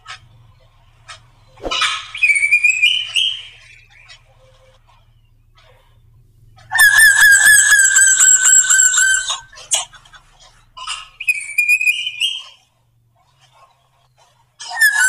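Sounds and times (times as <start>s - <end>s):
bird singing ringing notes: 0.0s - 9.6s, 11.0s - 12.6s.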